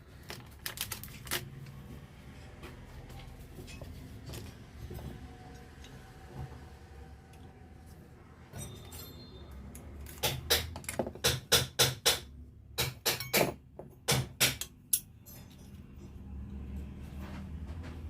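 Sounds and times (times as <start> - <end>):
metal-on-metal knocks: 10.2 - 15.7.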